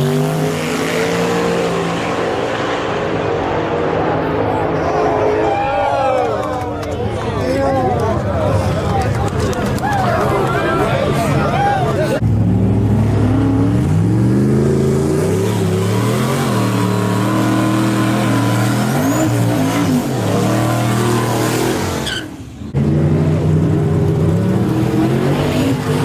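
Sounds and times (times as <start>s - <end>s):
truck engine revving: 0.0s - 4.9s, 12.1s - 26.0s.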